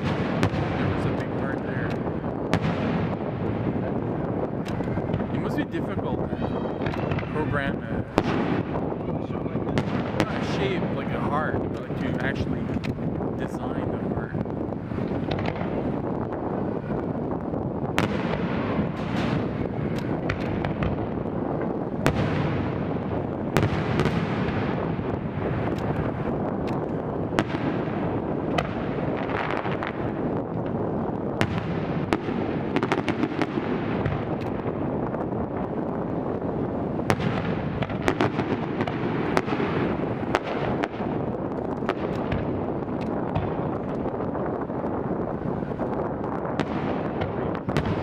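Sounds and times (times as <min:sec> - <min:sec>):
firework cracks and pops: 0:00.0 - 0:48.0
steady rumble: 0:00.0 - 0:48.0
firework shells bursting: 0:09.6 - 0:16.9, 0:17.8 - 0:45.0.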